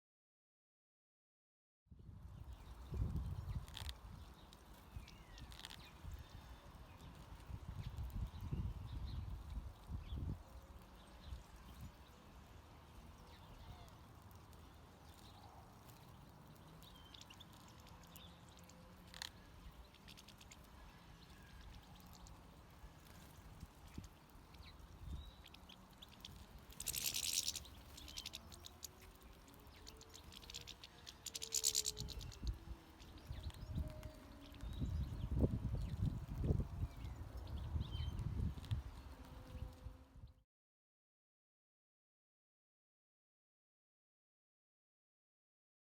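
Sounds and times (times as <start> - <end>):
goldfinches twittering: 24.6 - 34.8.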